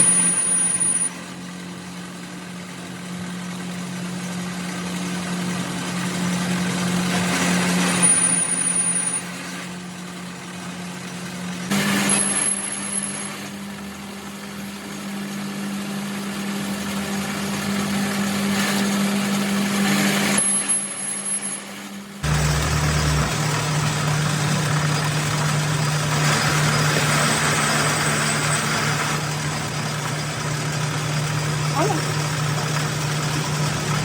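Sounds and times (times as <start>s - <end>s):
car engine idling: 22.2s - 34.0s.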